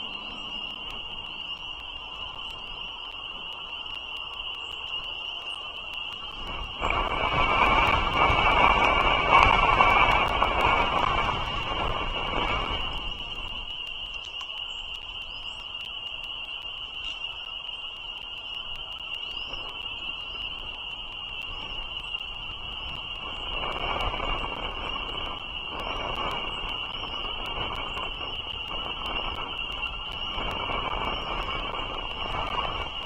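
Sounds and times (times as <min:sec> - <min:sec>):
rushing noise: 0:00.0 - 0:03.6, 0:06.2 - 0:13.7
high-pitched frog chorus: 0:00.0 - 0:33.0.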